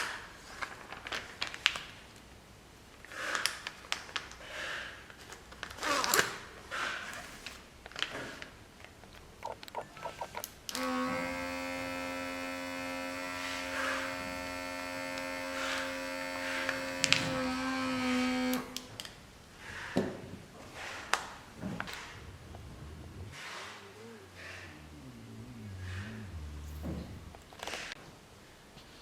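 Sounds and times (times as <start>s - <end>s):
vacuum sealer pump motor: 10.7s - 18.8s.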